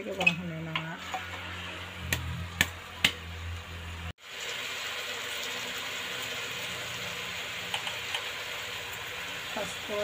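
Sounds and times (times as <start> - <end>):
metal spoon clinking on pot: 0.1 - 0.8
meat sizzling in a pot: 0.9 - 10.0.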